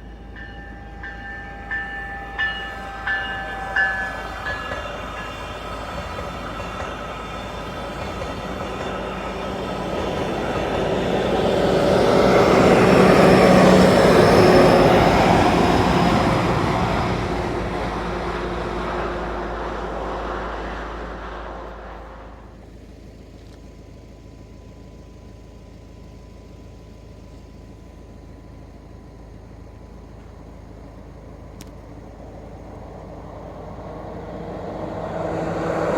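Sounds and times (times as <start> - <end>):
diesel locomotive train passing: 0.0 - 35.9.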